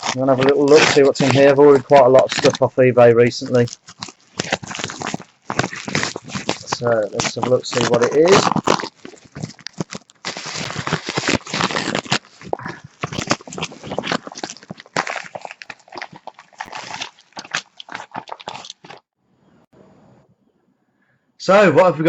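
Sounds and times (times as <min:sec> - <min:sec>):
packaging tearing and crinkling: 0:00.0 - 0:19.1.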